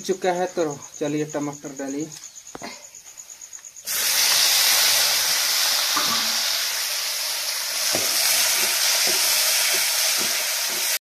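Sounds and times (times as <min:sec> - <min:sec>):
tomatoes sizzling in hot oil: 0:03.8 - 0:11.0
spoon knocking against pan: 0:07.9 - 0:11.0.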